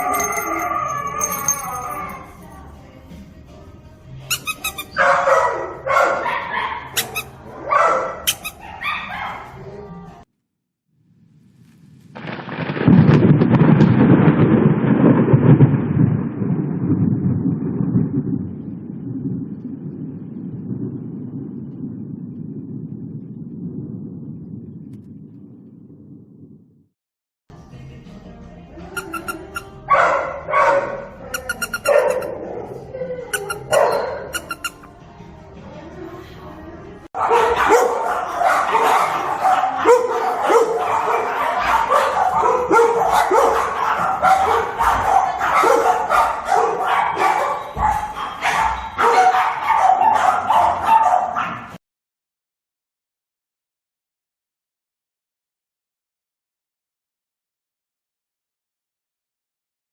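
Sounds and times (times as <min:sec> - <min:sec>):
dog barking: 0:04.9 - 0:09.6, 0:29.6 - 0:34.6, 0:37.2 - 0:51.8
thunder rumbling: 0:11.1 - 0:26.7.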